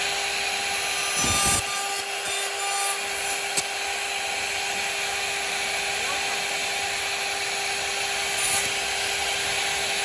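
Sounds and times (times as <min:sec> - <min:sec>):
router spindle whine: 0:00.0 - 0:10.0
bit rasping in wood: 0:00.7 - 0:03.7, 0:08.2 - 0:08.8.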